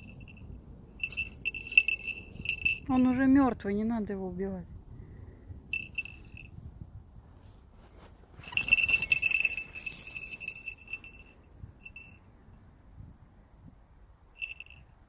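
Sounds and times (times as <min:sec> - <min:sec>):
bell jingling: 0:00.0 - 0:03.2, 0:05.7 - 0:06.5, 0:08.4 - 0:12.2, 0:14.4 - 0:14.9.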